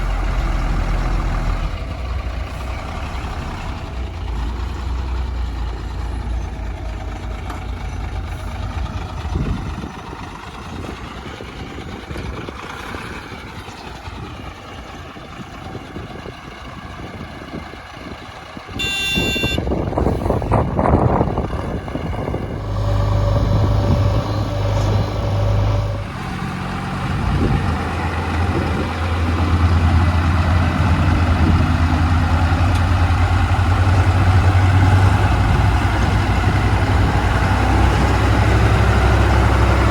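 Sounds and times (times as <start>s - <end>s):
heavy diesel engines running: 0.0s - 39.9s
short high horn tone: 18.8s - 19.7s.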